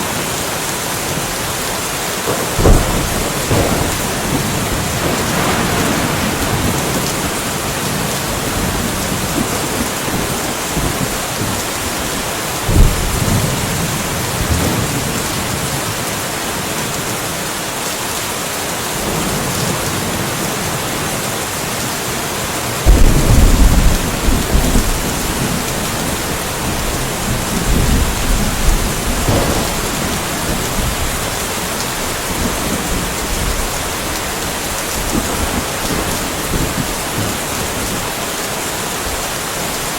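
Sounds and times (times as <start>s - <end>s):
steady rain hiss: 0.0s - 39.9s
low thunder thump: 2.3s - 8.0s, 22.9s - 31.3s
thunder rumble: 2.3s - 15.8s, 22.8s - 38.2s.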